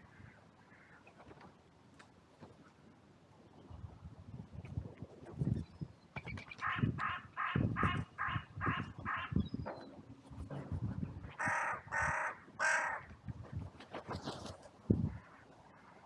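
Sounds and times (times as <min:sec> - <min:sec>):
crows cawing: 0:11.4 - 0:13.1.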